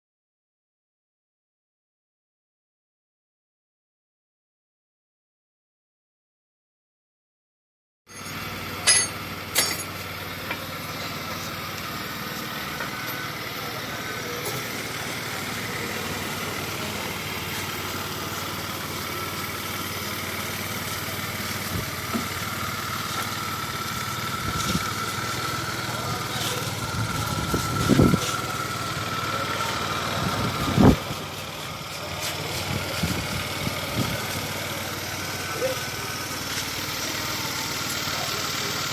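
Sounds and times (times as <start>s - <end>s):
scooter engine idling: 8.2s - 38.9s.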